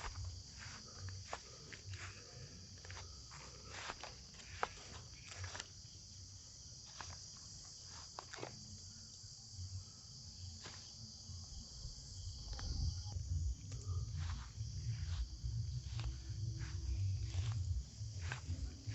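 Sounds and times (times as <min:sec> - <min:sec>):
crickets trilling: 0:00.0 - 0:18.9
low rumble: 0:12.3 - 0:18.9.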